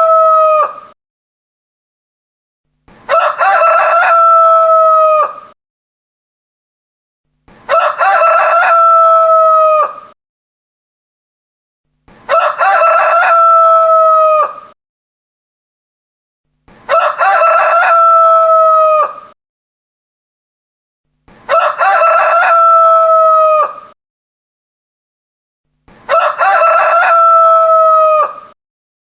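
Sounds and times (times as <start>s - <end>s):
rooster crowing: 0.0s - 0.9s, 3.1s - 5.6s, 7.7s - 10.2s, 12.3s - 14.8s, 16.9s - 19.4s, 21.5s - 24.0s, 26.1s - 28.6s.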